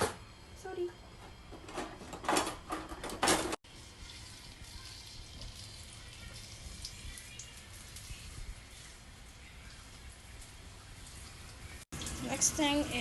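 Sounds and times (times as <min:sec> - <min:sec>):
ginger sizzling in hot oil: 0:03.6 - 0:13.0.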